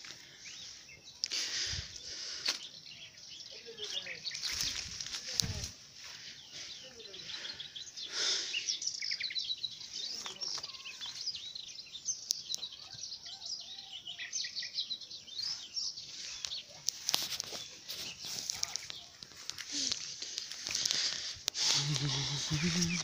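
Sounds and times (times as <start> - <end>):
small birds singing and chirping: 0.0 - 23.0
sharp crackles: 16.2 - 23.0.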